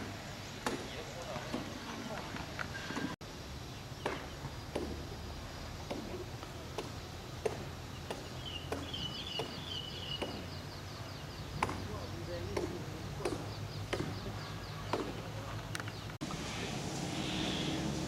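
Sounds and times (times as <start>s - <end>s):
bird chirping and warbling: 8.2s - 11.6s.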